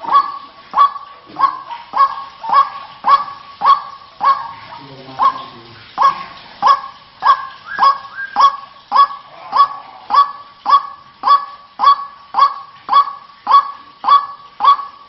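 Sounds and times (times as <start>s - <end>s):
bird calling with honking notes: 0.0s - 15.0s.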